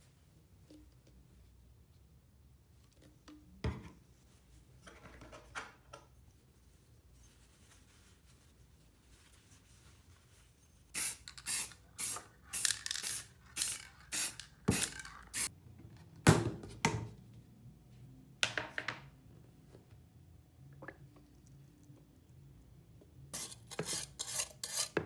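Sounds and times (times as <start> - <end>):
short hissing bursts: 11.0 - 15.5.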